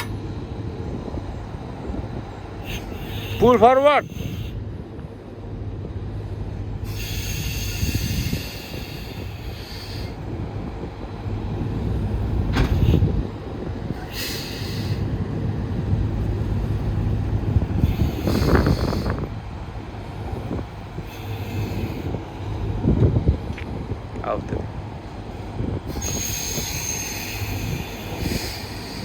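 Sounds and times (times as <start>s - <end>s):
diesel truck engine running: 0.0s - 29.0s
short hisses: 2.6s - 4.6s, 6.9s - 10.2s, 12.5s - 13.2s, 13.9s - 15.1s, 21.0s - 22.4s, 25.9s - 29.0s.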